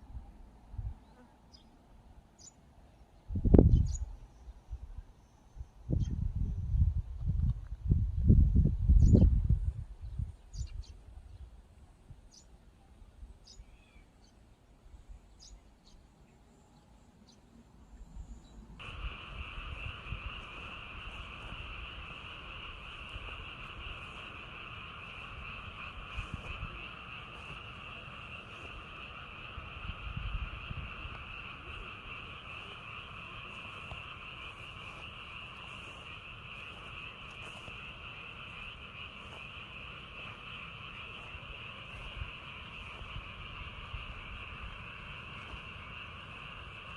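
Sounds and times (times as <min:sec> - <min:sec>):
frogs calling: 0:15.4 - 0:46.9
low rumbles: 0:18.2 - 0:46.9.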